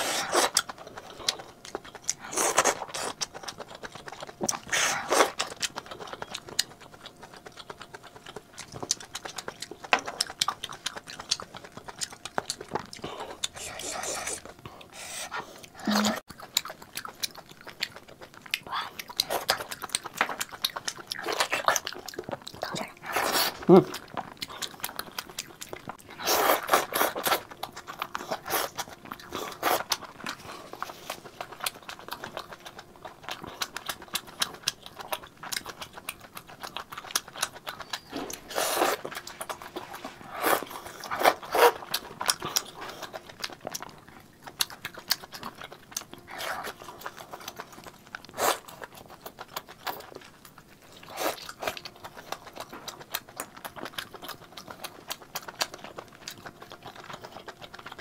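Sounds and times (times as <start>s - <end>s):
loud eating bursts: 0.0s - 5.8s, 10.4s - 17.2s
wet chewing mouth clicks: 0.0s - 58.0s.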